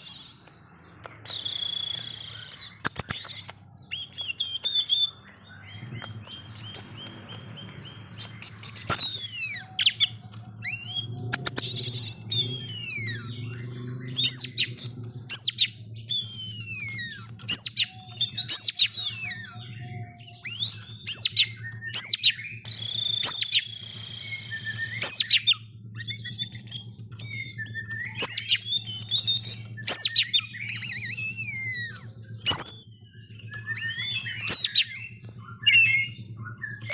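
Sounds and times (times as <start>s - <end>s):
bird singing sharp whistles: 1.0s - 36.9s.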